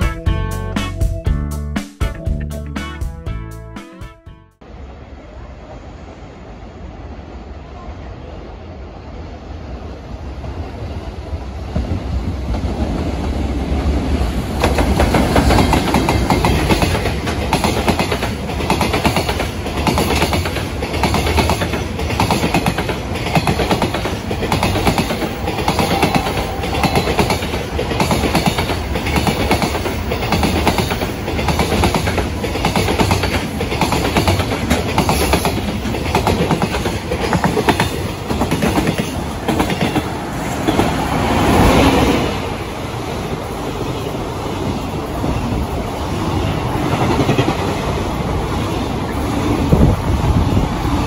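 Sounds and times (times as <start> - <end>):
electric locomotive passing: 4.6 - 51.0
freight train rumble: 4.6 - 51.0
wheels clacking over rail joints: 11.7 - 41.7.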